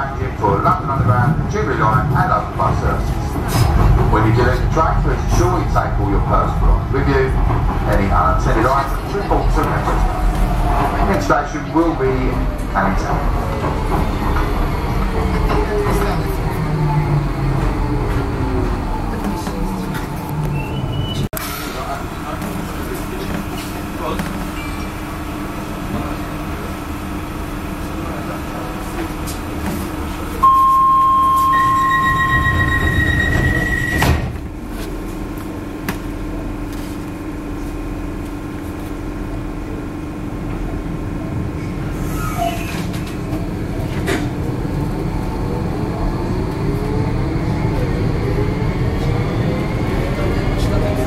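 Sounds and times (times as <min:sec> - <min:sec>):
warning tone: 0:30.4 - 0:34.1.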